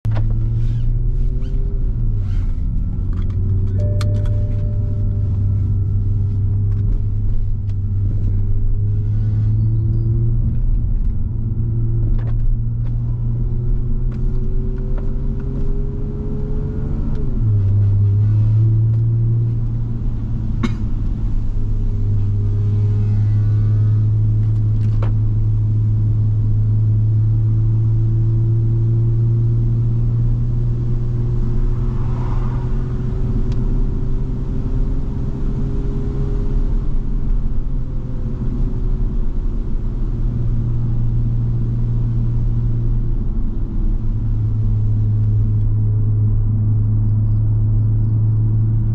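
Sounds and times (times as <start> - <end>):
car engine droning: 0.0 - 48.9
road noise: 0.0 - 48.9.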